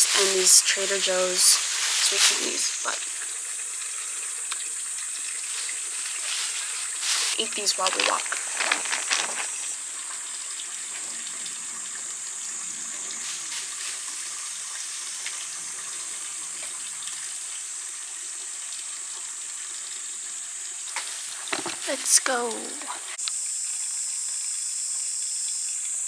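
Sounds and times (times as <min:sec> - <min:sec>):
stream water rushing: 0:00.0 - 0:10.4, 0:20.9 - 0:23.2.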